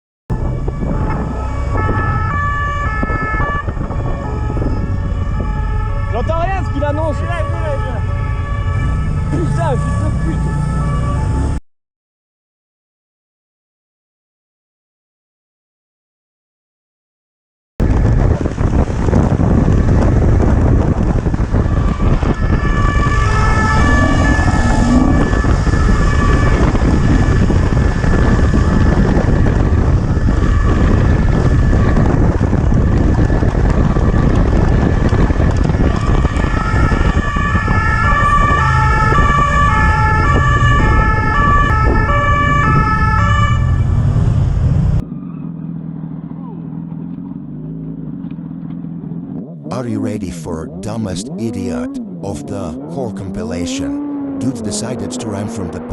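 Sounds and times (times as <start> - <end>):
road noise: 0.3 - 11.6, 17.8 - 55.9
rushing wind: 0.3 - 11.6, 17.8 - 49.9
two-tone police siren: 0.3 - 11.6, 19.7 - 45.4.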